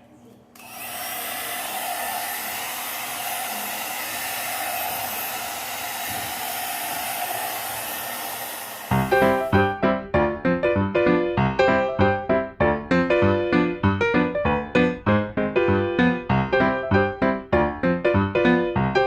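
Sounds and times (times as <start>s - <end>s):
hair dryer blowing: 0.6s - 9.7s
piano music: 8.9s - 19.0s.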